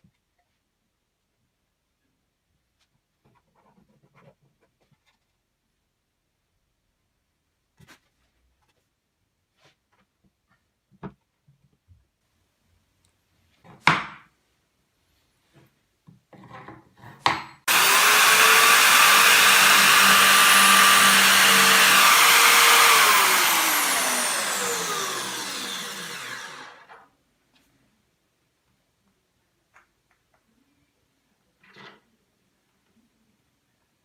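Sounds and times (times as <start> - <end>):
power tool motor running: 17.7 - 26.9.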